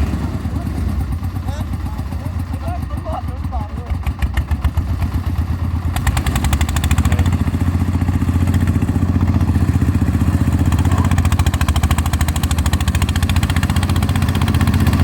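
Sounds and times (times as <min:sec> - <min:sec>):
threshing machine engine chugging: 0:00.0 - 0:15.0.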